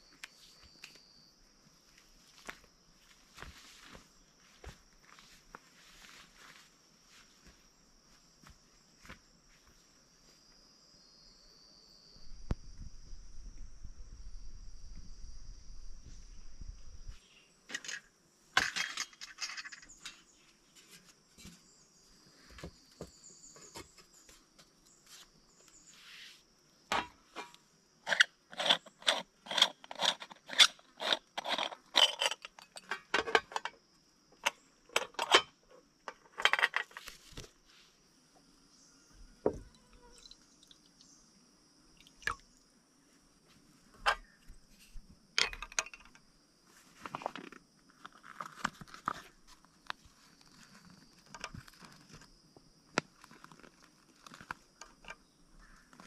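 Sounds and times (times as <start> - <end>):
crickets and insects buzzing: 0.0 - 56.0
short sharp clinks and knocks: 45.4 - 46.2.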